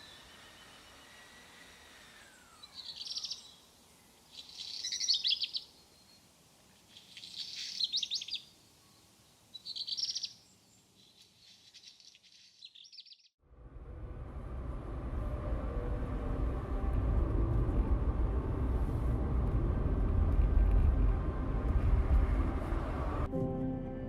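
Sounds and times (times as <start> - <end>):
small songbird singing: 2.4 - 13.4
loud low rumble: 13.4 - 23.4.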